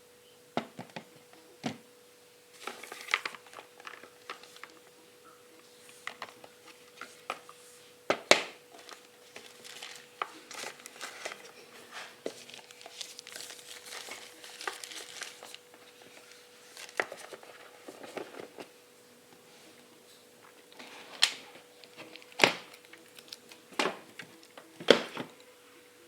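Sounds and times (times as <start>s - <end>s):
packaging crinkling: 2.5s - 4.9s, 8.3s - 18.7s, 20.7s - 25.2s.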